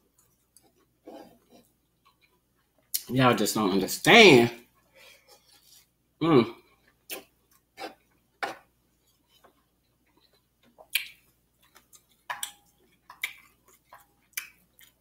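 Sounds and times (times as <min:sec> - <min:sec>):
person chewing with mouth smacks: 0:09.3 - 0:15.0.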